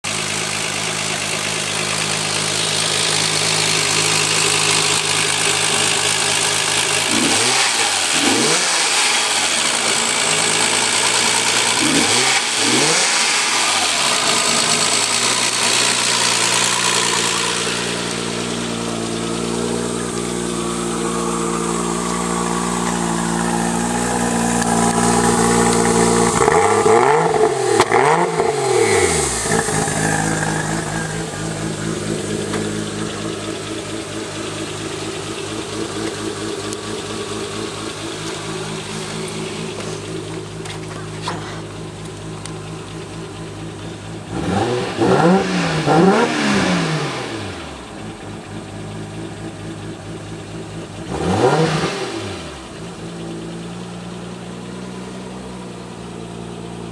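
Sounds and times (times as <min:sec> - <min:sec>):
car engine idling: 0:00.0 - 0:56.9
engine revving blips: 0:06.9 - 0:41.6, 0:42.3 - 0:48.1, 0:51.0 - 0:52.8.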